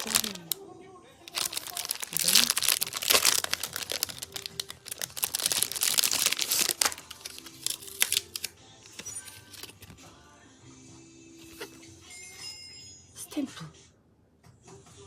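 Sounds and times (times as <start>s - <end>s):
plastic packaging crinkling: 0.0s - 0.6s, 1.3s - 8.5s
faint music: 0.0s - 15.0s.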